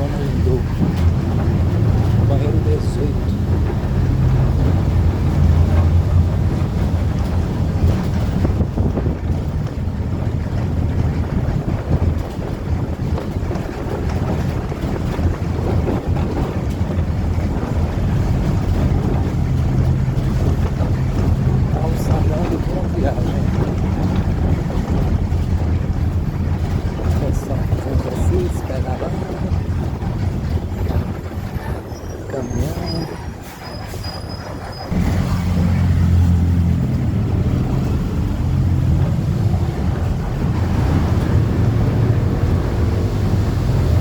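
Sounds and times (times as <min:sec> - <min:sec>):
large vehicle engine running: 0:00.0 - 0:44.0
wind blowing across microphone: 0:00.0 - 0:44.0
sea surf washing: 0:34.9 - 0:44.0.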